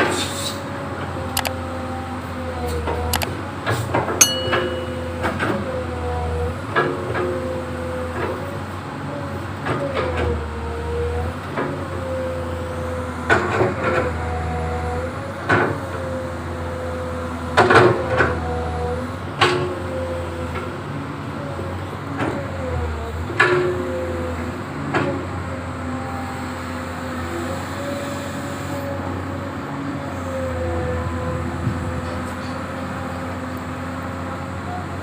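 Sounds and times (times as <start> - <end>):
sharp metal clanks: 4.2 - 5.4.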